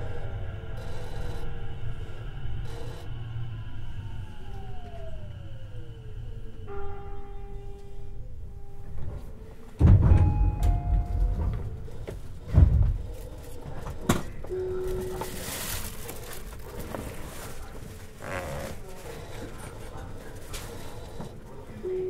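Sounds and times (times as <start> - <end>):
electric train motor tones: 0.0 - 22.0
heavy low thuds: 9.7 - 13.3.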